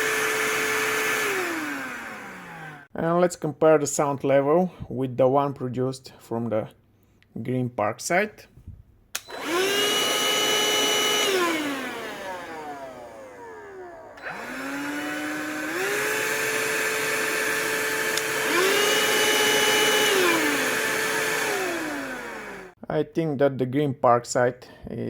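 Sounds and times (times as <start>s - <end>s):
cordless vacuum cleaner whine: 0.0s - 2.9s, 9.2s - 22.8s.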